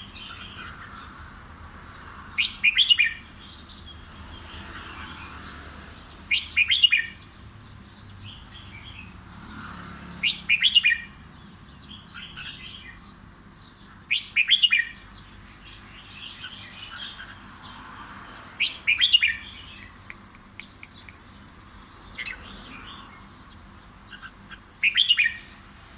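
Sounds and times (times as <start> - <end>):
bird singing song phrase: 10.2 - 17.8, 18.6 - 25.9
soft bird chirps: 18.6 - 25.9.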